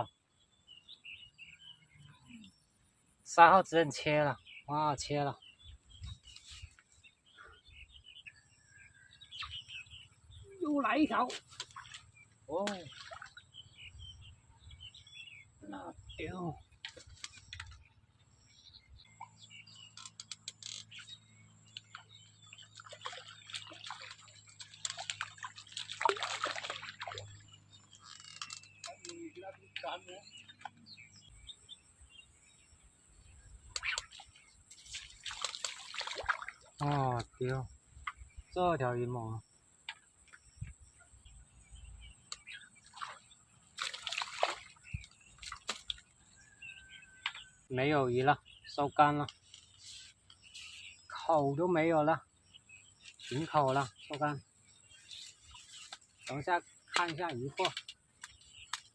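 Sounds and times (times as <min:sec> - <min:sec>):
fish splashing in water: 0:11.5 - 0:13.4, 0:21.8 - 0:27.5, 0:33.8 - 0:36.8, 0:42.8 - 0:46.1.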